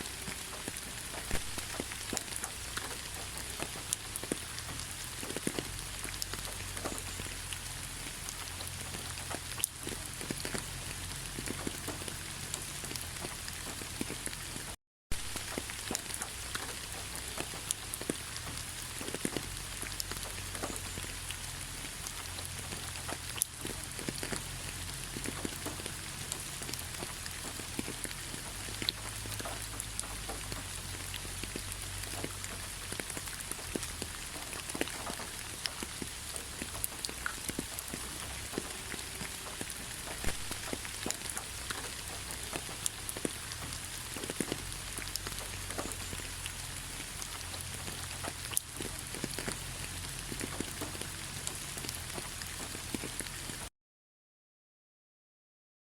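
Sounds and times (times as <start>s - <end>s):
steady rain falling: 0.0s - 53.7s.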